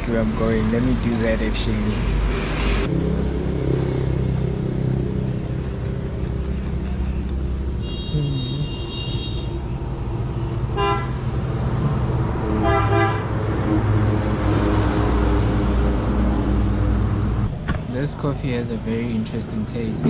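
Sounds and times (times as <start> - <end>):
traffic engine rumble: 0.0 - 14.4
vehicle horns honking: 6.8 - 9.6, 10.8 - 11.2.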